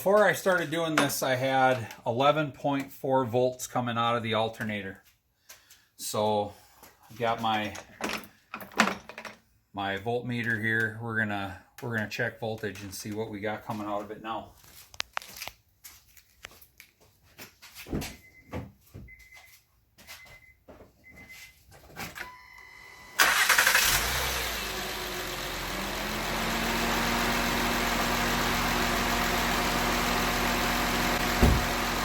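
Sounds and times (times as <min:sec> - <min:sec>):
car engine cranking and idling: 0:23.2 - 0:32.0
knock: 0:31.4 - 0:31.7.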